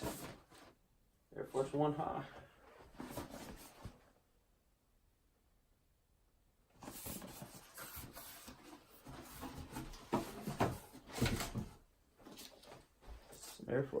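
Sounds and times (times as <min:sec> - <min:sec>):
box rustling and scraping: 0:00.0 - 0:00.7, 0:02.8 - 0:04.0, 0:06.8 - 0:13.5.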